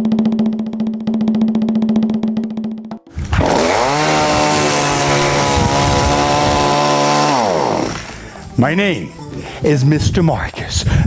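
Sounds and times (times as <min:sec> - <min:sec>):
chainsaw engine running: 0:03.1 - 0:08.4.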